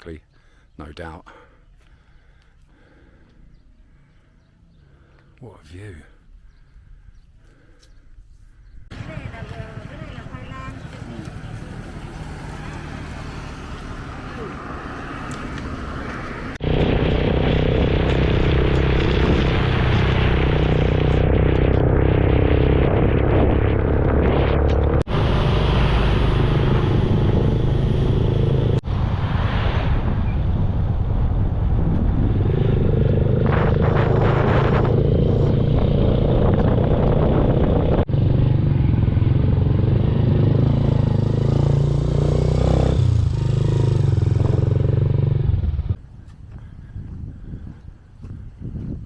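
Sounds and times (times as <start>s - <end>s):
road noise: 0.0s - 49.0s
motorcycle engine running: 8.9s - 14.6s, 32.2s - 46.0s
wind noise: 14.6s - 41.6s, 42.8s - 49.0s.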